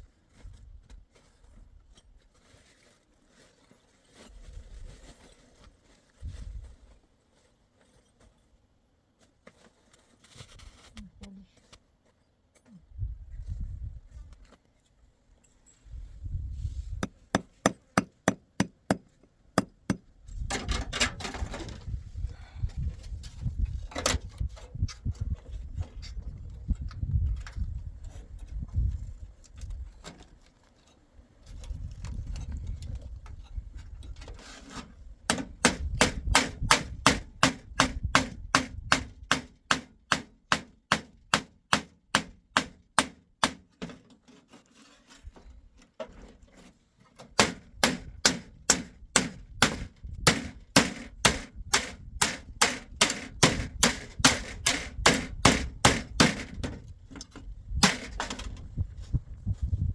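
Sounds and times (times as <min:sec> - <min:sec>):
hammer driving nails into wood: 0:17.0 - 0:20.8, 0:35.3 - 0:43.7, 0:47.4 - 0:56.8, 0:57.8 - 0:58.4.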